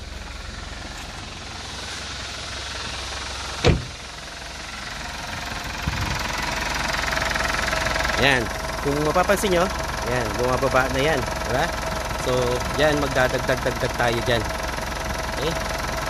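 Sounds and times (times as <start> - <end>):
car engine idling: 0.0 - 16.0
sharp knock: 3.6 - 4.0.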